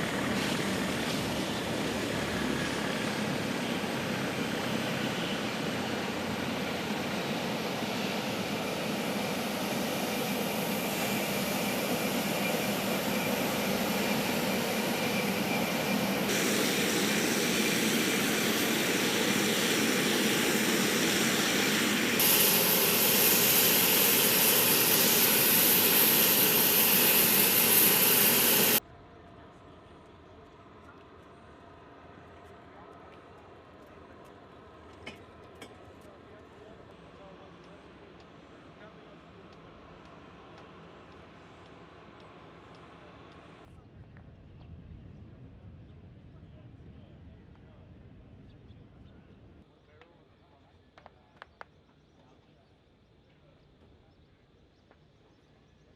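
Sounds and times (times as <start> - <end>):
aircraft turbine engines running: 0.0 - 28.8, 37.0 - 43.7.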